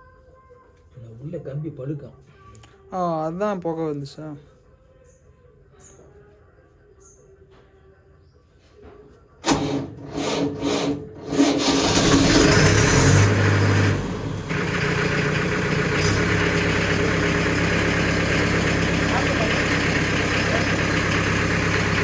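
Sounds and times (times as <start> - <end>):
tractor diesel engine starting: 9.4 - 22.0.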